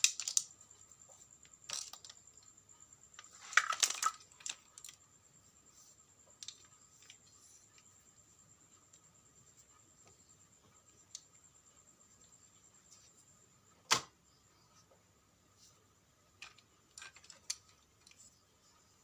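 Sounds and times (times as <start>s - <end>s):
small hard objects clattering: 0.0s - 0.5s, 1.6s - 2.2s, 3.2s - 5.0s
faint high-pitched whine: 0.0s - 19.0s.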